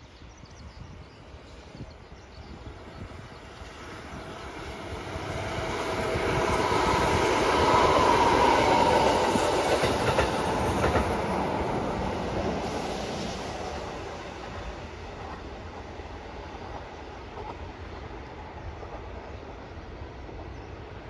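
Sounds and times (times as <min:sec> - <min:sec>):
electric train passing: 0:00.0 - 0:21.0
wheels clacking over rail joints: 0:07.8 - 0:12.6.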